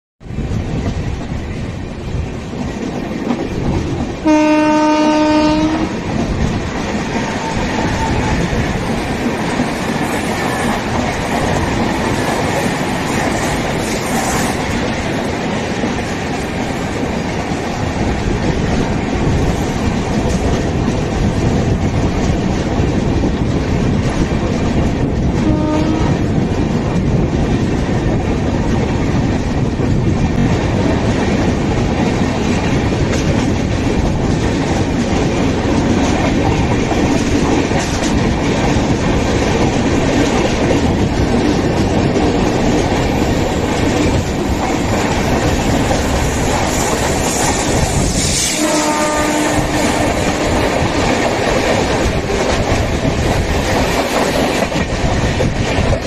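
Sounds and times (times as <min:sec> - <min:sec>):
clickety-clack over rail joints: 0:00.2 - 0:56.0
passing train rumble: 0:00.2 - 0:56.0
wheel and rail rumble: 0:00.2 - 0:56.0
train horn: 0:04.2 - 0:06.0, 0:07.2 - 0:08.5, 0:25.4 - 0:26.3, 0:48.2 - 0:51.0.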